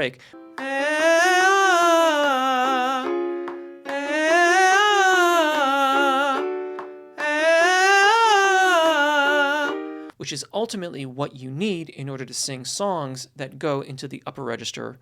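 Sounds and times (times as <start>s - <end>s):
man singing vocal scales: 0.0s - 10.0s
keyboard notes: 0.2s - 10.2s.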